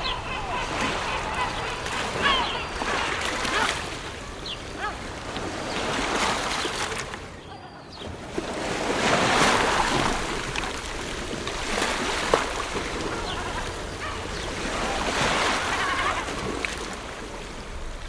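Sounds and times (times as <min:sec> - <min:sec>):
ocean waves breaking on shore: 0:00.0 - 0:18.0.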